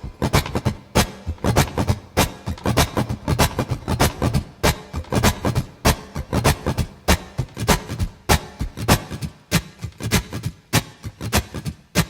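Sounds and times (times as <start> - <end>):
guitar strummed percussively: 0.0 - 11.7.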